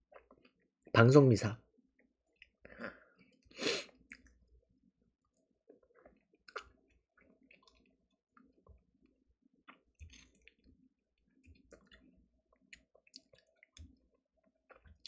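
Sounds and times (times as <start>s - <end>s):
person chewing crispy food: 5.2s - 15.0s
wet mouth clicks: 5.9s - 6.8s.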